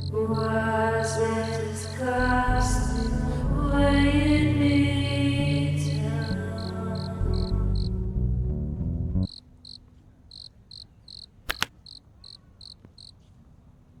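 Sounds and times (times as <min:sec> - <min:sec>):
background music: 0:00.0 - 0:09.3
cricket chirping: 0:06.2 - 0:07.9, 0:09.3 - 0:13.2
sharp clicks: 0:10.4 - 0:13.1.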